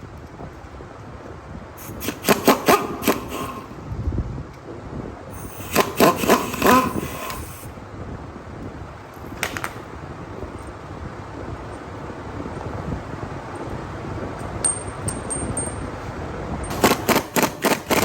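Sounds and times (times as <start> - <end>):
metal tools clanking: 14.6 - 16.0.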